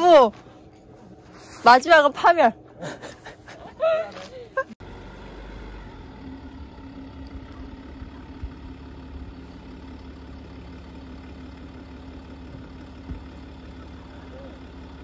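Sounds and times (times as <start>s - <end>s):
engine running at low revs: 2.4s - 15.0s.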